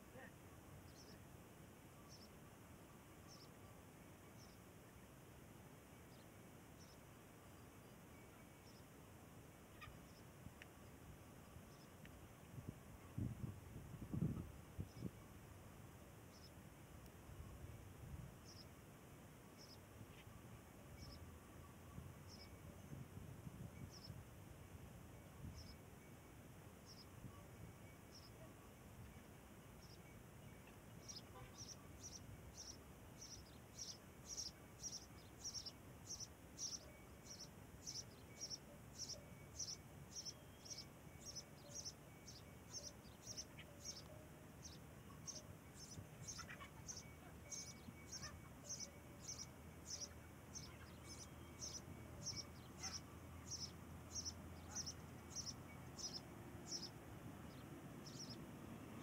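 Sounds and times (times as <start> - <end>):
small bird chirping: 29.8 - 58.4.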